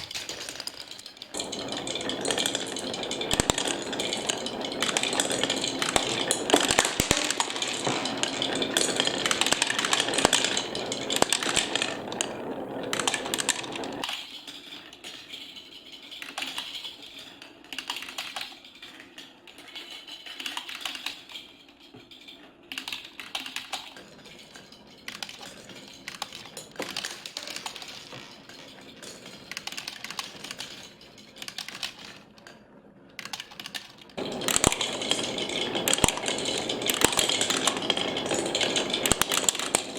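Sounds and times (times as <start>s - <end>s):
plastic balls rattling: 0.0s - 14.1s, 33.3s - 39.9s.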